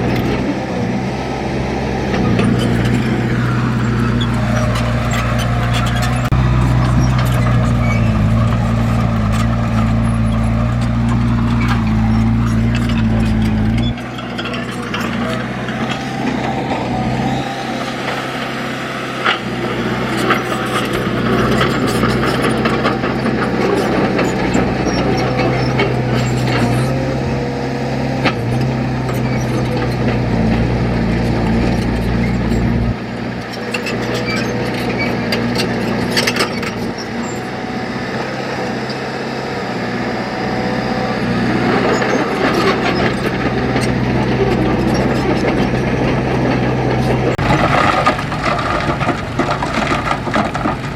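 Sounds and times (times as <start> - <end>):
construction machine engine running: 0.0 - 50.9
knocks and clanks: 41.8 - 50.9.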